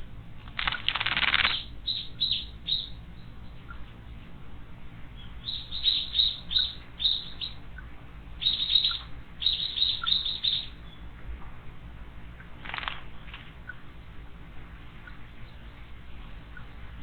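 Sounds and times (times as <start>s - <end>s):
small birds chirping: 0.4s - 4.0s, 5.0s - 11.2s, 12.4s - 13.9s.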